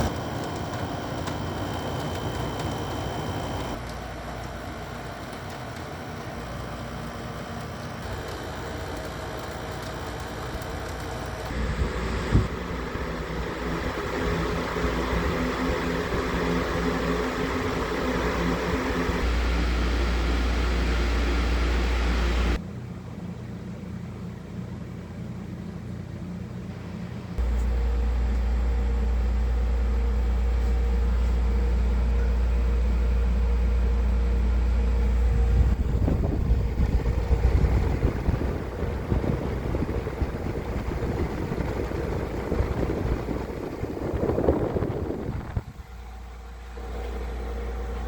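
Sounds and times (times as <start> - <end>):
air conditioner compressor hum: 0.0 - 48.0
uneven rumbling: 30.3 - 48.0.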